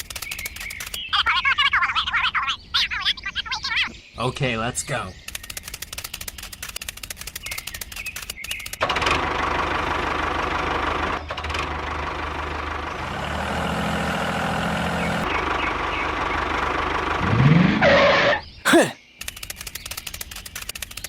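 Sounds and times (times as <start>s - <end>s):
model tractor motor running: 13.0s - 15.2s.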